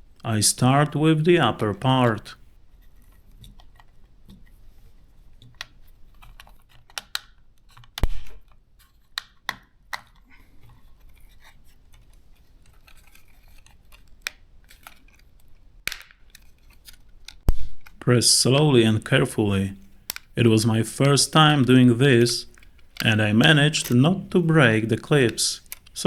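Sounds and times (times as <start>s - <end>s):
plastic clips snapping: 5.6s - 8.6s, 15.8s - 18.0s, 19.9s - 20.4s, 22.4s - 26.0s.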